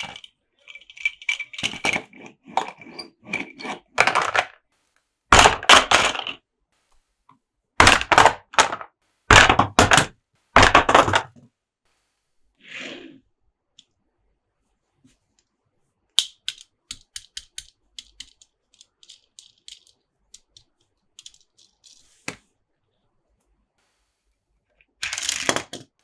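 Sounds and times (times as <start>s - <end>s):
hands rustling toys: 0.0s - 7.0s, 16.2s - 22.4s
light clicks and taps of toys: 16.2s - 22.4s.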